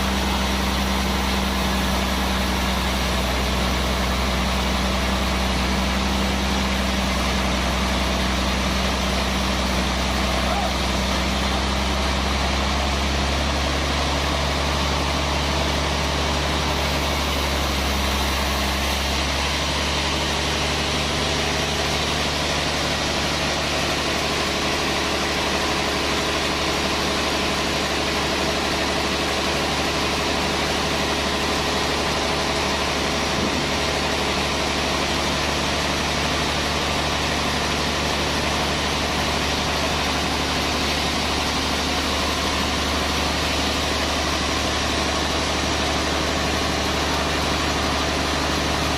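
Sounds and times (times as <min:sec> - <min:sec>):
sawmill machinery humming: 0:00.0 - 0:48.9.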